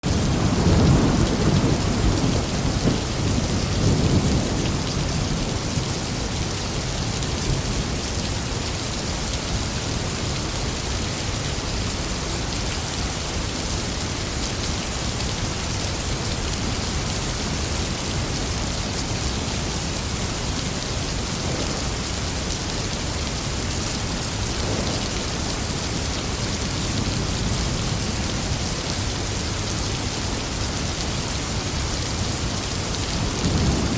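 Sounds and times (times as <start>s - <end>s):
heavy rain falling: 0.0s - 33.9s
low rumble of thunder: 0.1s - 6.4s, 24.2s - 29.4s, 33.1s - 33.9s.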